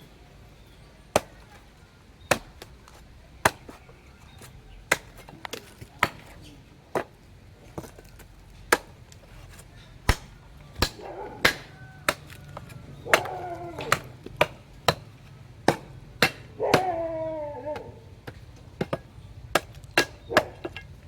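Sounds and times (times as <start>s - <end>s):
hand tool chopping blows: 10.1s - 20.9s.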